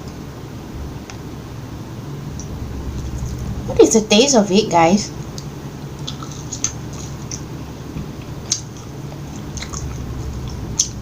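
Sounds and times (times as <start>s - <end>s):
faint room hum: 0.0s - 11.0s
chewing french fries: 5.3s - 11.0s.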